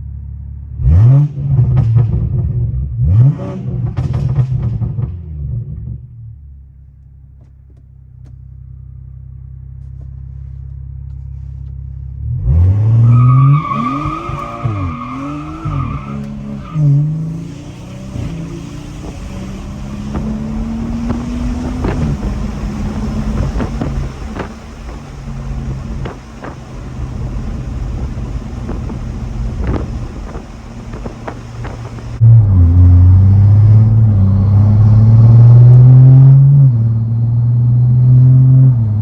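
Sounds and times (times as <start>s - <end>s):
turbocharged car engine revving: 0.8s - 5.0s, 12.2s - 39.0s.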